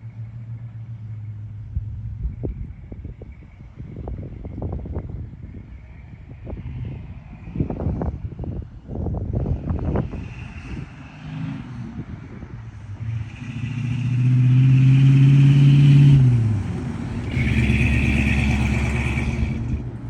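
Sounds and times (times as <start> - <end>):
pickup truck driving by: 9.4 - 20.0.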